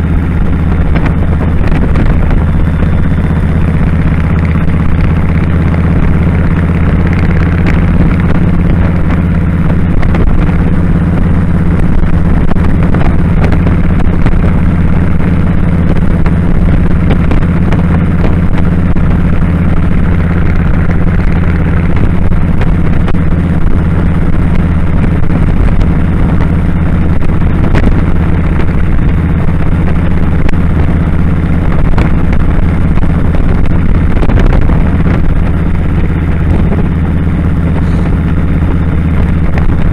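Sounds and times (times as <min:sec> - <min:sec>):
motorcycle engine running steadily: 0:00.0 - 0:39.9
wind and road noise: 0:00.0 - 0:39.9.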